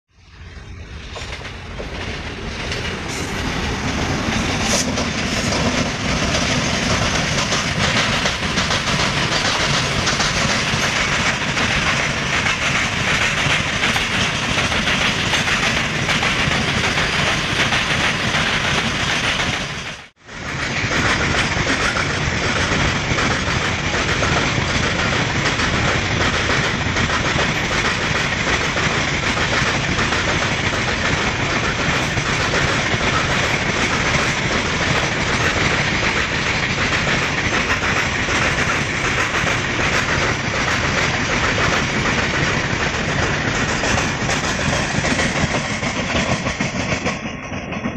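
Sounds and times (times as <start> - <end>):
train wheels clattering over rail joints: 1.0 - 47.9.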